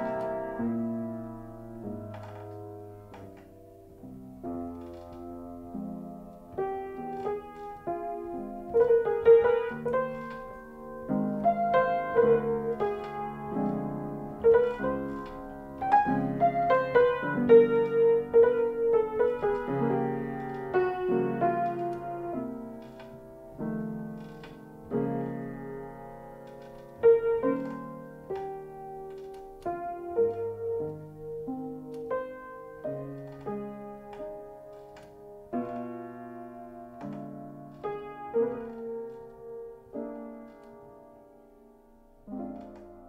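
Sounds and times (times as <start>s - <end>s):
piano music: 0.0s - 43.0s.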